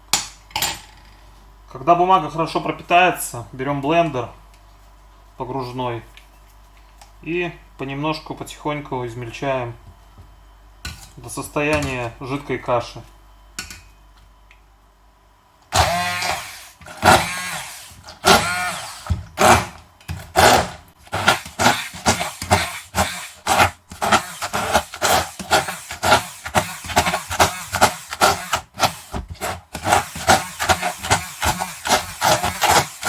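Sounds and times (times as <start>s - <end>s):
immersion blender whirring in pulses: 15.7s - 33.0s.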